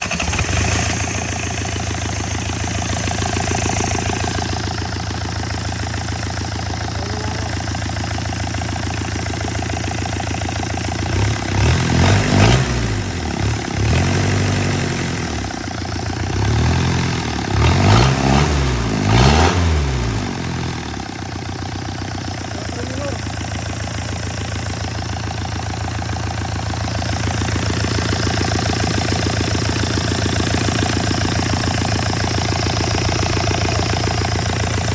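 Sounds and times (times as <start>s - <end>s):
diesel engine idling and revving: 0.0s - 34.9s.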